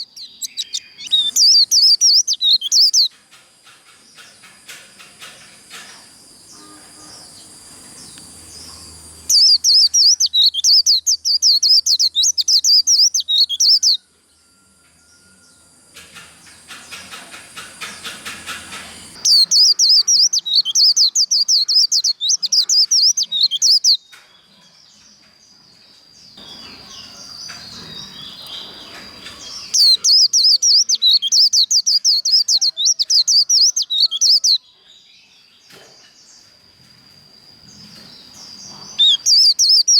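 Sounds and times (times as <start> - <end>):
bird rapid high-pitched warbling: 0.0 - 3.1, 9.3 - 14.0, 16.8 - 24.0, 26.4 - 34.6, 38.8 - 39.9
quiet bird twittering: 0.0 - 39.9.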